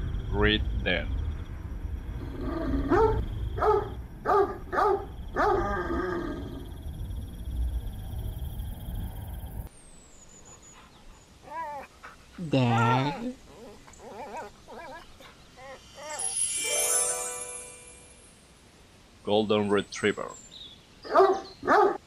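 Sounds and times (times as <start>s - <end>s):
low steady rumble: 0.0s - 5.5s.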